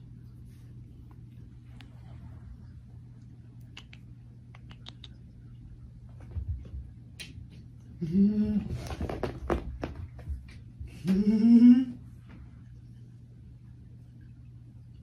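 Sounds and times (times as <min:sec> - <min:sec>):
person humming: 0:08.0 - 0:08.7, 0:10.9 - 0:12.0.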